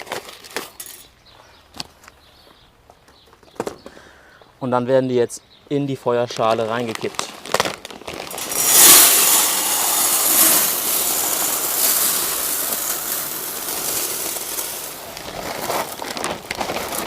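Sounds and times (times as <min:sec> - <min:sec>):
glass chips pouring and rattling: 0:08.3 - 0:17.0.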